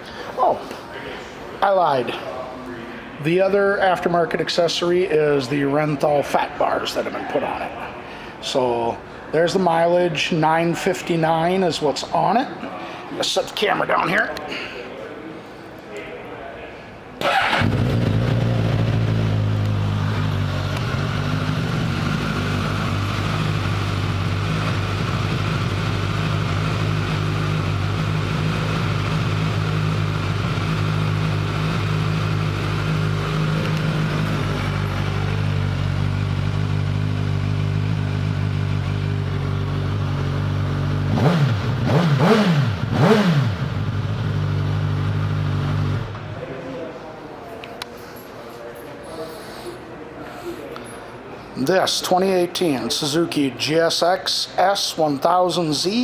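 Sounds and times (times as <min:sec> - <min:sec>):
motorcycle engine idling and revving: 0:17.2 - 0:46.2.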